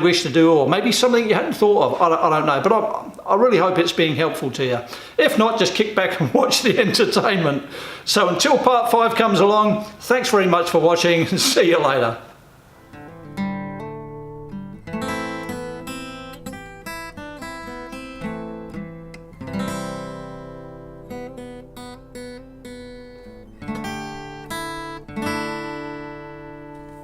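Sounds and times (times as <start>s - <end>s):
solo acoustic guitar: 12.3s - 27.0s.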